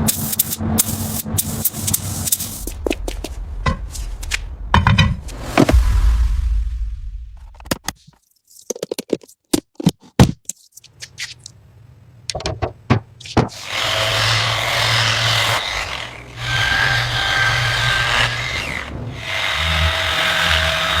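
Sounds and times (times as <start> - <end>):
sharp knocks and clicks: 12.3 - 13.6
power tool humming: 13.5 - 21.0.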